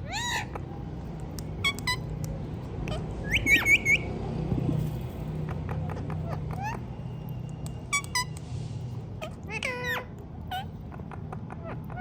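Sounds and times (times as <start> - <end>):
parakeet chirping: 0.0 - 2.2, 2.8 - 4.2, 5.5 - 8.4.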